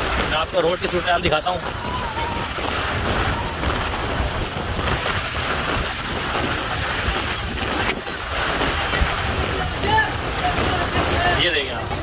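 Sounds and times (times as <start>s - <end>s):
heavy rain pouring on street: 0.0s - 12.0s
wind gusts buffeting microphone: 0.0s - 12.0s.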